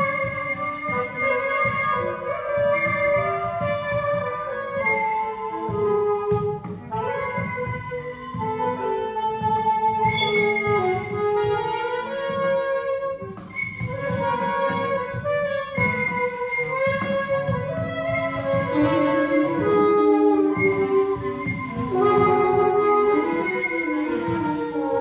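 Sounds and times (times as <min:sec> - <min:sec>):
saxophones and clarinet holding notes: 0:00.0 - 0:25.0
fast hand drumming: 0:13.2 - 0:25.0.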